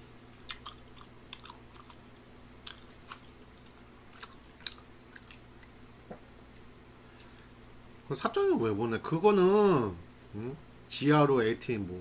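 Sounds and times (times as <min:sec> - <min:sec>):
wet mouth clicks chewing: 0:00.4 - 0:05.8.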